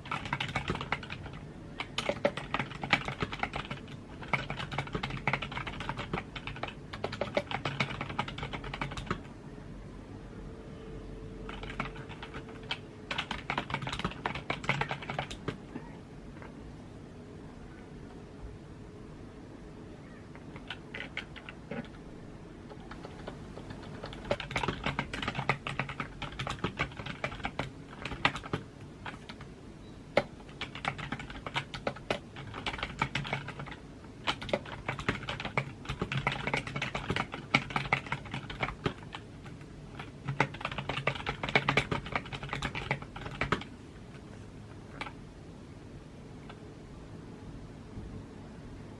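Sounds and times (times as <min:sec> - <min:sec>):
typing on computer keyboard: 0:00.0 - 0:09.3, 0:11.4 - 0:15.6, 0:20.3 - 0:22.0, 0:22.6 - 0:29.5, 0:30.1 - 0:45.2.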